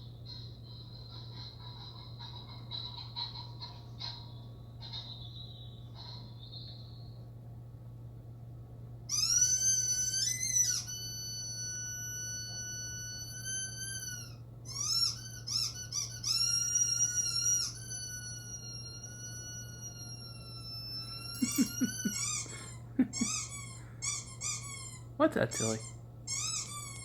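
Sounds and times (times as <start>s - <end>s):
high-pitched squealing whine: 9.2s - 23.6s.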